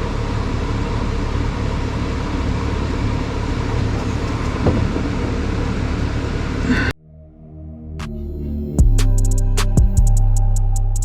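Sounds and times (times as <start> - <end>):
low mechanical hum: 0.0 - 7.0.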